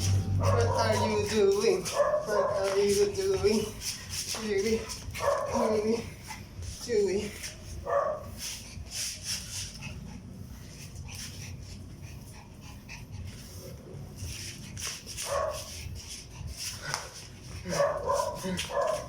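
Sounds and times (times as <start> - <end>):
small dog whimpering and barking: 0.0 - 3.6.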